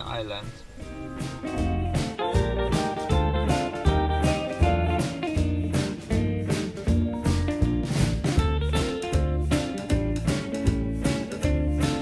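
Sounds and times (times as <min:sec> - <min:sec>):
band playing a steady beat: 0:00.6 - 0:12.0.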